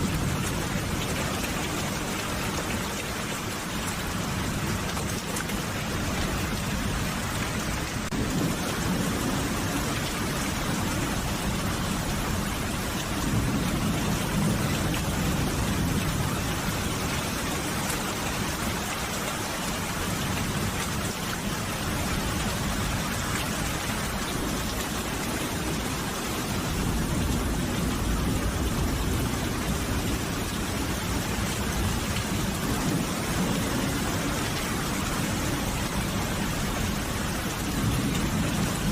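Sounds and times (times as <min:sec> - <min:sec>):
heavy rain falling: 0:00.0 - 0:38.9
distant thunder rumbles: 0:04.0 - 0:18.6.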